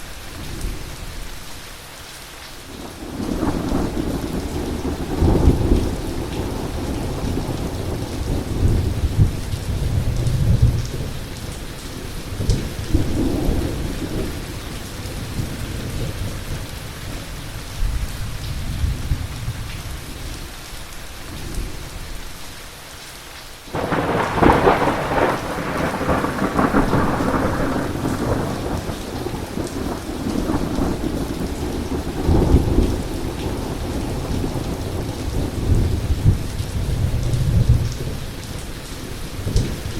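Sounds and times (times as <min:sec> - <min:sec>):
heavy rain: 0:00.0 - 0:39.9
rolling thunder: 0:03.0 - 0:11.6, 0:23.7 - 0:38.4
loud thunderclap: 0:23.7 - 0:38.2.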